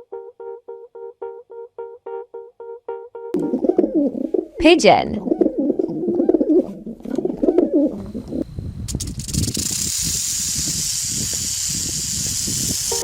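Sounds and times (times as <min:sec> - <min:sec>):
pigeon cooing: 0:03.4 - 0:08.4
rattlesnake tail rattle: 0:08.8 - 0:13.0.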